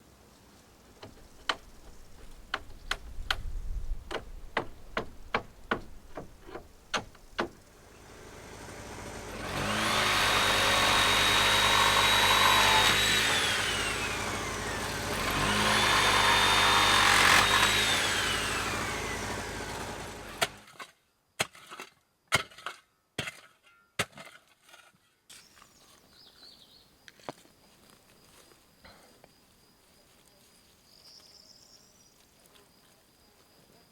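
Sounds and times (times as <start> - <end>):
power tool running: 1.0 - 3.4, 4.0 - 20.6
sharp knocks: 1.0 - 7.6.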